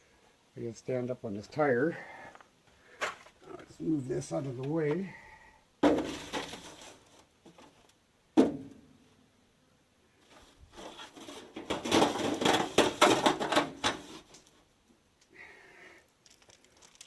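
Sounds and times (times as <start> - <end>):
chain links clinking and rattling: 16.2 - 17.0.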